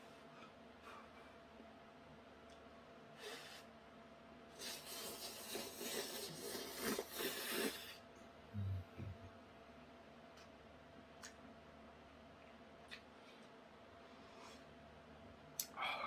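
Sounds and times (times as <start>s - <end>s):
person slurping noodles: 4.6s - 8.0s.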